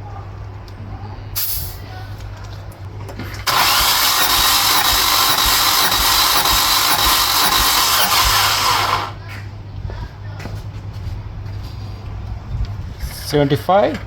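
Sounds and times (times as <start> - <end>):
starter motor cranking engine: 3.4 - 9.2
steady whine: 3.5 - 9.2.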